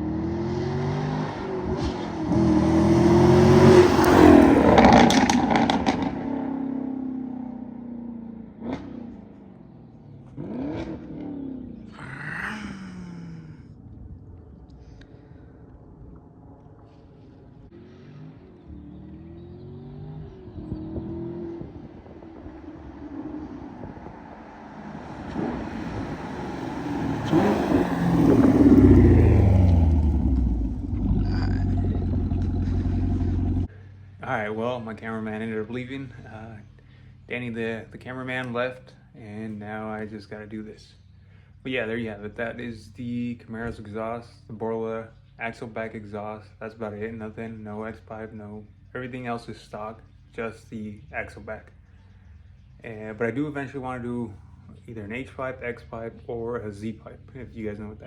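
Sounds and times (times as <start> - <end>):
car engine accelerating past: 0.0 - 12.5, 16.6 - 33.7.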